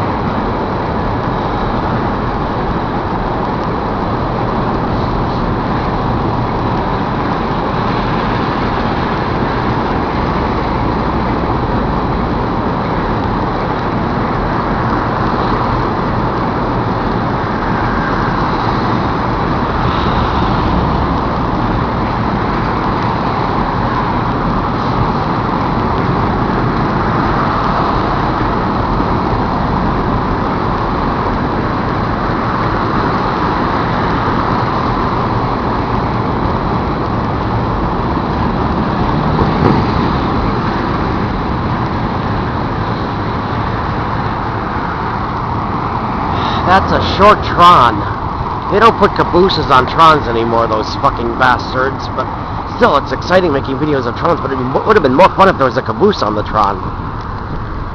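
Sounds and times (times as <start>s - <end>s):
freight train rumbling past: 17.6s - 23.3s, 44.4s - 50.8s.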